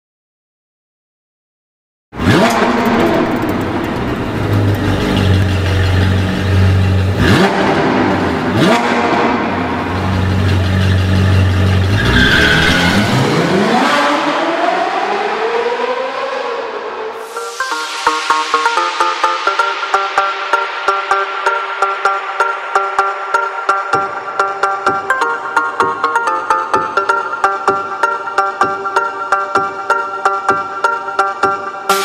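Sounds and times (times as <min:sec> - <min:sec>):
sports car engine revving: 0:02.2 - 0:17.1.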